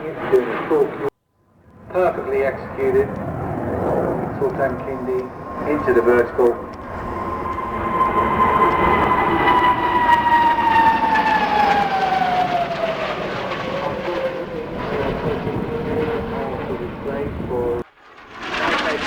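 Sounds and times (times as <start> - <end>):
jet engine roar flying past: 0.0 - 19.0.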